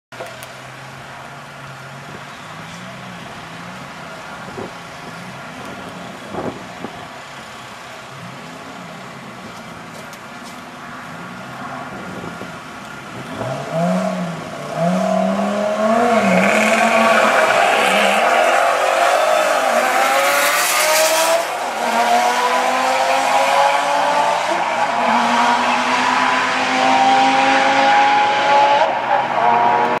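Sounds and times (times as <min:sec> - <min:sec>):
car engines revving: 0:00.4 - 0:30.0
engines accelerating hard: 0:13.2 - 0:30.0.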